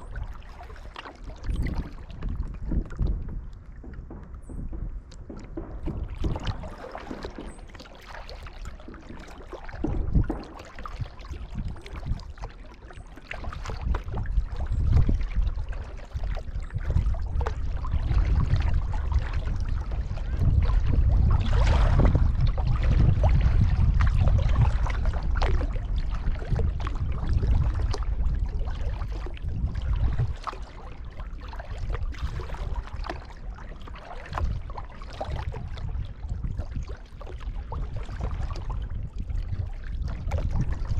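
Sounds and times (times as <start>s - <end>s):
water splashing and dripping: 0.0s - 40.9s
low rumble: 1.4s - 7.8s.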